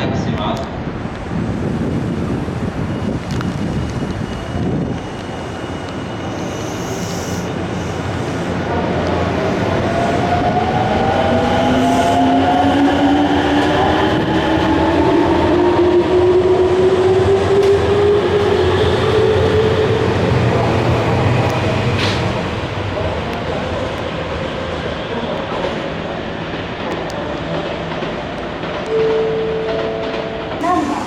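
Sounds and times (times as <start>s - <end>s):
wheels rumbling on rails: 0.6s - 6.7s.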